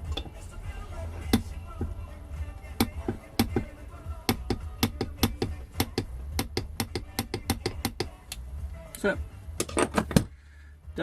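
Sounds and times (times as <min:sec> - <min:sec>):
sharp clicks and taps of hand tools: 0:02.8 - 0:03.7, 0:04.3 - 0:08.4.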